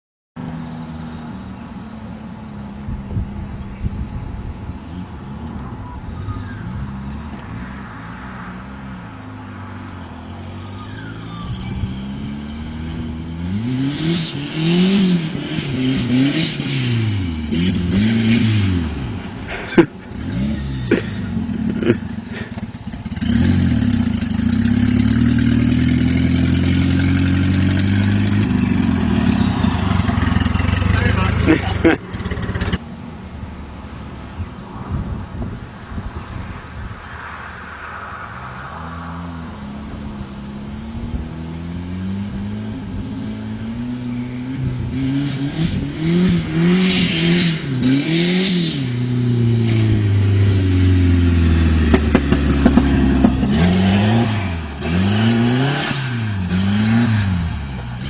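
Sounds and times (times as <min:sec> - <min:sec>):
turbocharged car engine revving: 0:04.2 - 0:32.8, 0:34.9 - 0:58.0.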